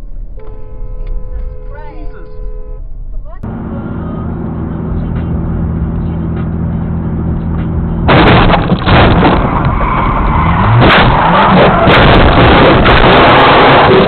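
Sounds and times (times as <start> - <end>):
vehicle engine running: 3.0 - 9.6
loud rough rush of noise: 8.0 - 14.0.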